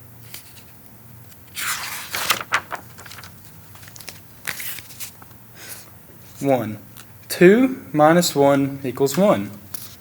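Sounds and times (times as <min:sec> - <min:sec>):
paper rustling: 0:01.4 - 0:07.1, 0:09.1 - 0:10.0.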